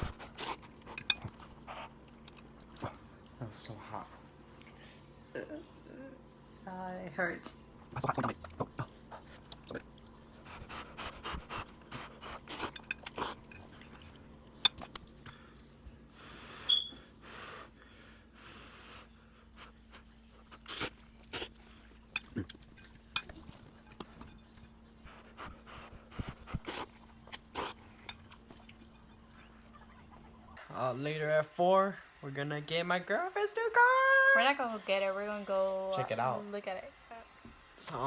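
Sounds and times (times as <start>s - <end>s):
slurping noodles: 10.5s - 13.5s, 20.4s - 21.6s, 25.8s - 28.0s
fork scraping bowl: 11.3s - 15.0s.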